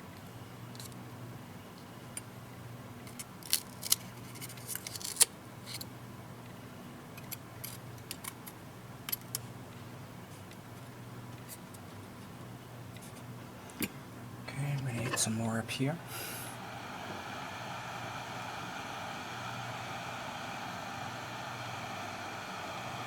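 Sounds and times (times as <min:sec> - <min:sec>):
low steady hum: 0:08.8 - 0:23.0.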